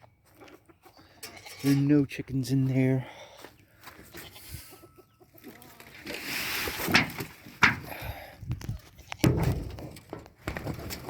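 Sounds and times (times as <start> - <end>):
chickens clucking: 0.0 - 11.0
rustling of something shifted: 5.7 - 7.9.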